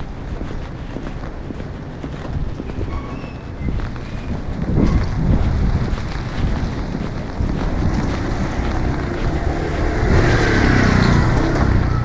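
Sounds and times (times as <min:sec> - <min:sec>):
street noise: 0:00.0 - 0:12.0
wind buffeting microphone: 0:00.0 - 0:12.0
vehicle passing close by: 0:05.8 - 0:12.0.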